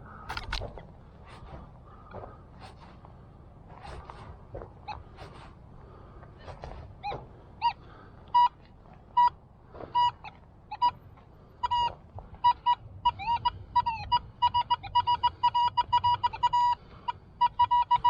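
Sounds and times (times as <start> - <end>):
metal detector beeps: 7.0 - 18.0.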